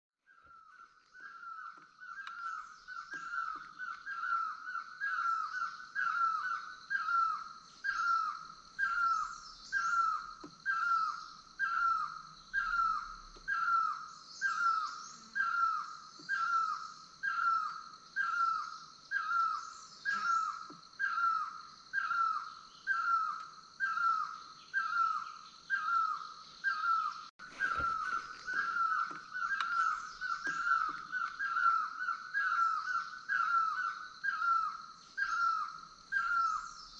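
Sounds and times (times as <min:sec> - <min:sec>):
bird calling falling note: 0:27.4 - 0:31.7.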